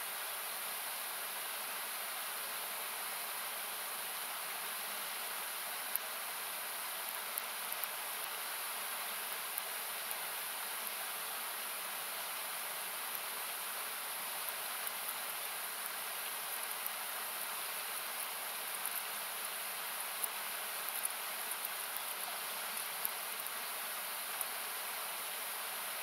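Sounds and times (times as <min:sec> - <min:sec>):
campfire crackling: 0:12.6 - 0:25.5.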